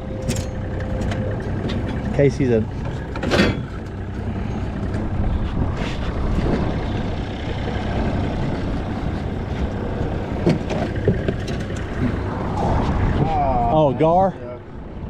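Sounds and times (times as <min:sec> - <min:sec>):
outboard motor idling: 0:00.0 - 0:12.4
wind buffeting microphone: 0:03.9 - 0:15.0.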